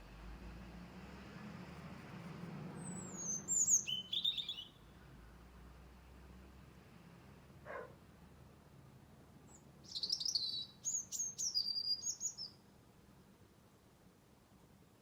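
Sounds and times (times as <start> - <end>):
songbird singing: 1.7 - 5.0, 9.4 - 12.6.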